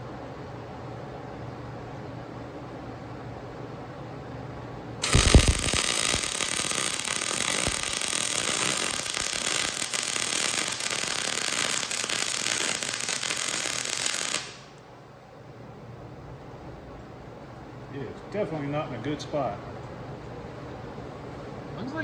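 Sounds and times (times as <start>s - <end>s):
welder arc pop: 5.0s - 14.8s
welder arc crackling: 5.0s - 14.9s.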